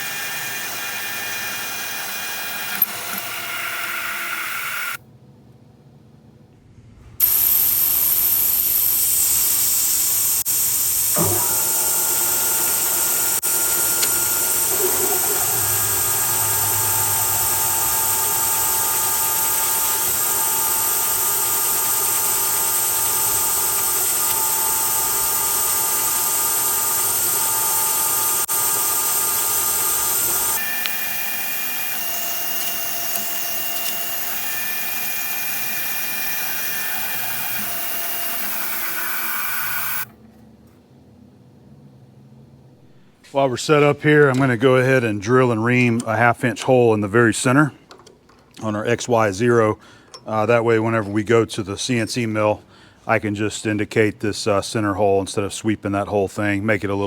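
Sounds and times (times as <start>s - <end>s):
milling machine whine: 0.0s - 5.0s, 7.2s - 40.1s
quieter machine whine: 0.0s - 5.6s, 6.4s - 40.4s.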